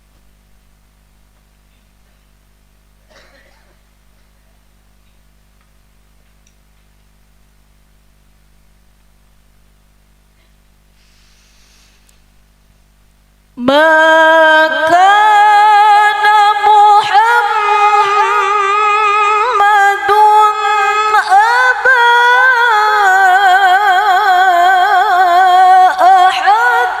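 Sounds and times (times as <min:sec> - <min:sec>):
woman chanting melodically: 0:13.6 - 0:27.0.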